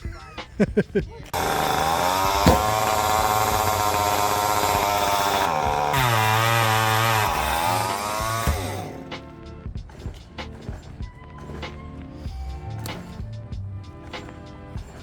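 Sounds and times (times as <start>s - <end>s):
chainsaw engine running: 1.3s - 9.3s.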